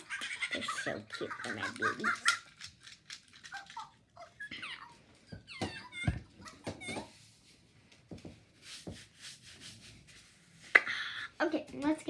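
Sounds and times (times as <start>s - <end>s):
toy monkeys chirping and babbling: 0.0s - 7.2s.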